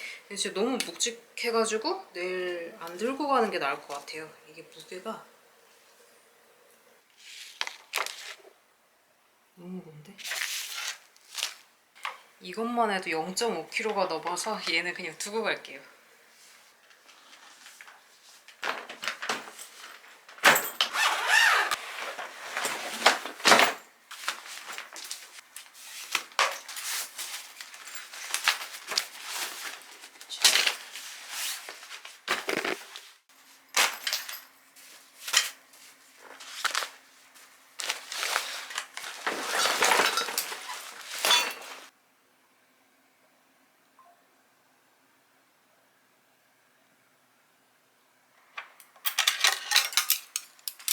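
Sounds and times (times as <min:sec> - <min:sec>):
bags and fabric rustling: 0:16.4 - 0:41.9.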